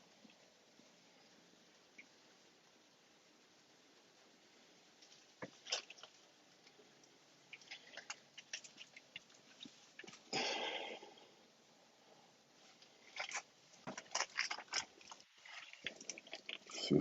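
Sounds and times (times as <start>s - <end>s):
faint clicks and crackles: 4.5s - 10.4s, 12.6s - 16.9s.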